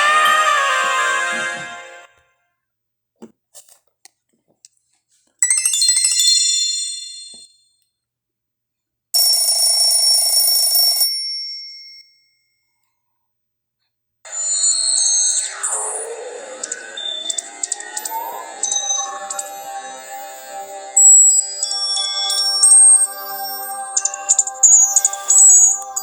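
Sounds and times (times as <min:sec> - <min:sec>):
electronic ringtone with high whistle: 0:00.0 - 0:02.1, 0:14.3 - 0:26.0
bright ringing trill ringtone: 0:15.0 - 0:26.0.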